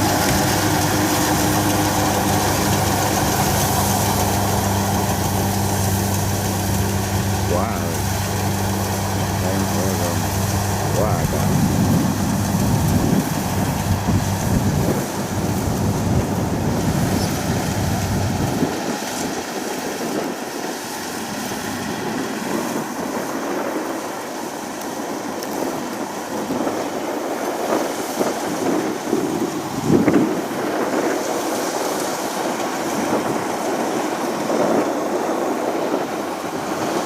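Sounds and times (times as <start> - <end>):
thin machine noise: 0.0 - 24.1
diesel engine drone: 0.0 - 37.0.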